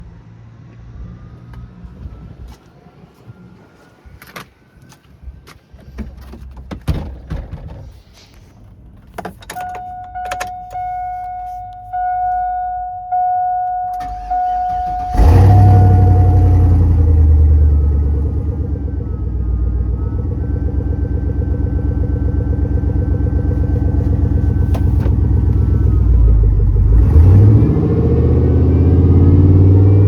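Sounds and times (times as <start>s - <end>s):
engine starting and rumbling: 5.8s - 30.0s
vehicle warning chime: 9.5s - 30.0s.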